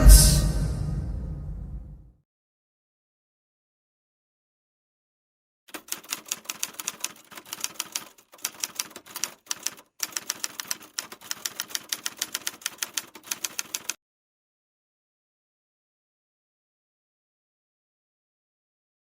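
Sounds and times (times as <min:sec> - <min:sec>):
typewriter keys clacking: 0:05.7 - 0:14.0.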